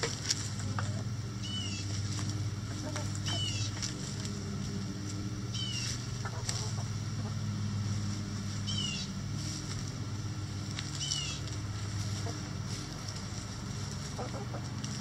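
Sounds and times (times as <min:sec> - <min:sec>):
steady low hum: 0:00.0 - 0:15.0
bird high downward chirp: 0:01.4 - 0:02.0, 0:03.2 - 0:03.8, 0:05.5 - 0:06.0, 0:08.6 - 0:09.2, 0:10.9 - 0:11.5.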